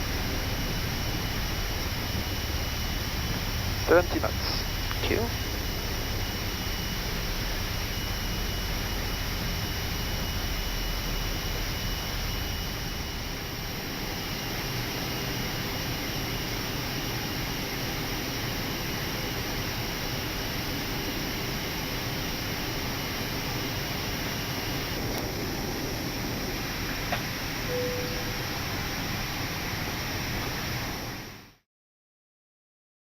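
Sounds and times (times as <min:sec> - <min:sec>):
jet engines and air hissing: 0:00.0 - 0:10.5.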